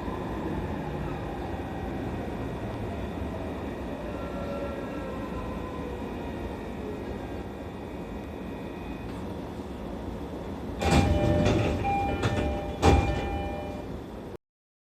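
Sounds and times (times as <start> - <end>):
train low rumble: 0.0 - 14.4
train doors opening with clunks: 7.0 - 14.3.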